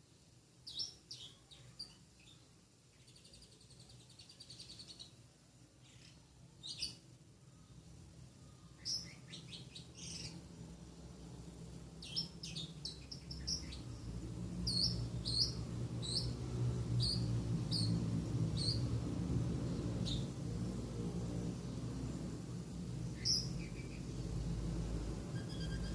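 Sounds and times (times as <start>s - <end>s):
lovebird high chirps: 0.6s - 5.2s, 5.8s - 7.0s, 8.5s - 10.5s, 12.0s - 16.4s, 17.0s - 18.0s, 18.6s - 18.8s, 23.2s - 24.2s, 25.3s - 25.9s
steady low hum: 7.1s - 25.9s.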